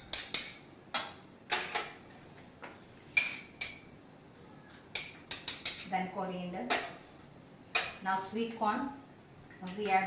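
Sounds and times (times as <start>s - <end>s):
utensils clinking against bowl: 4.9s - 5.9s.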